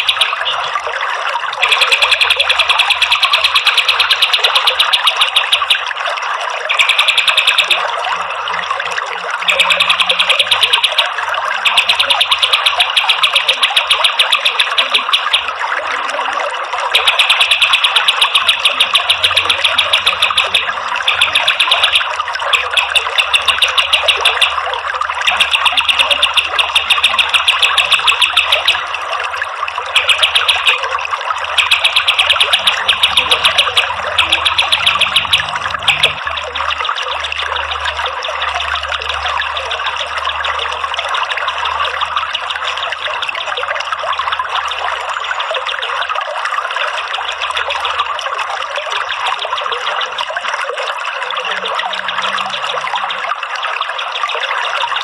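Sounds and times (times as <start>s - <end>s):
bird rattling trills: 0.0s - 0.9s, 1.6s - 6.0s, 6.6s - 8.0s, 9.3s - 15.6s, 16.9s - 40.6s
flowing water: 0.0s - 55.0s.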